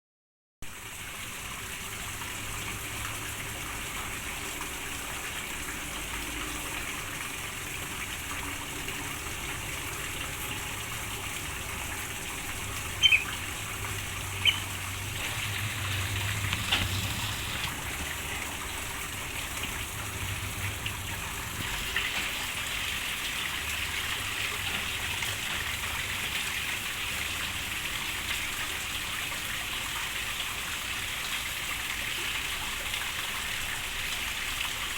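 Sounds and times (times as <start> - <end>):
steady rain falling: 0.7 - 31.1.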